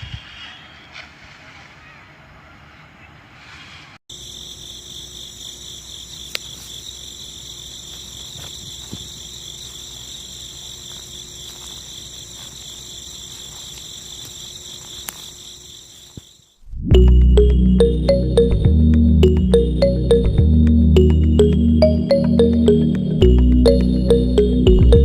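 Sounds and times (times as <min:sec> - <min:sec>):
crickets trilling: 0:04.1 - 0:16.6.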